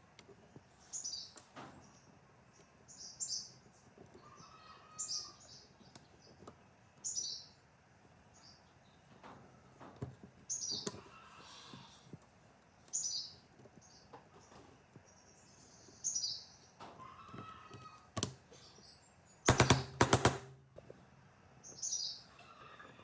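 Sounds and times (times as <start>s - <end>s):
small bird chirping: 0.7s - 7.6s, 10.4s - 11.9s, 12.8s - 19.6s, 21.6s - 23.0s.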